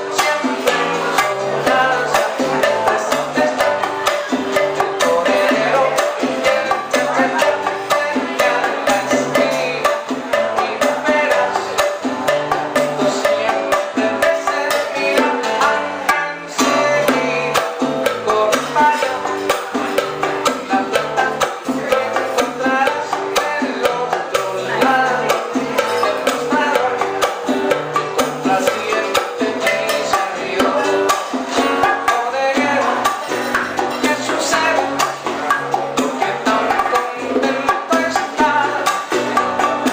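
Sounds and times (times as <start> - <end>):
driving percussion rhythm: 0.0 - 39.9
live band playing: 0.0 - 39.9
walking bass line: 0.0 - 39.9.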